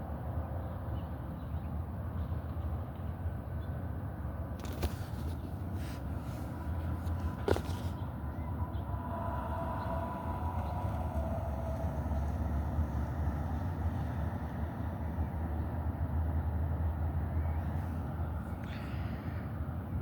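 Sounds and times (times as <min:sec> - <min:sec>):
low outdoor rumble: 0:01.4 - 0:20.0
faint high whine: 0:06.4 - 0:14.2.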